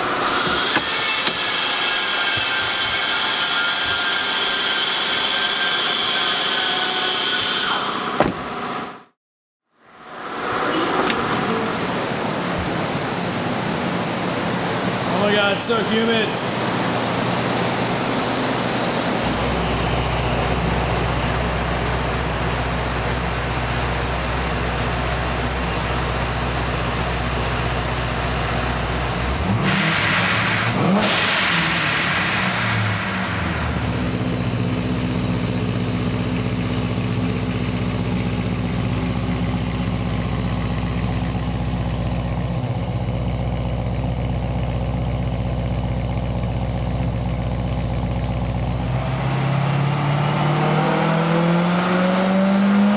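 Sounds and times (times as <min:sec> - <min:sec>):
engine revving: 0:10.2 - 0:40.0, 0:48.3 - 0:52.9
car engine idling: 0:10.5 - 0:50.3.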